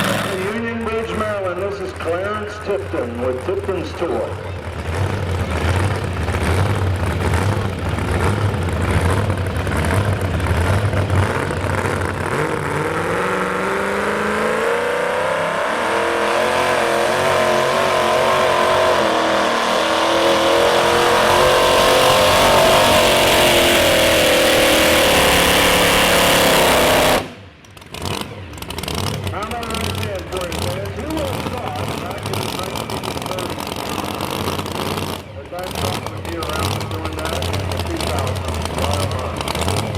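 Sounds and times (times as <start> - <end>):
truck engine at full throttle: 0.0 - 39.9.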